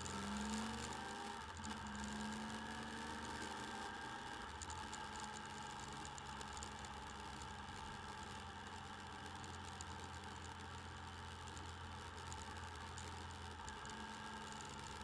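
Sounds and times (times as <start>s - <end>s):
faint light ticking: 4.4s - 15.0s.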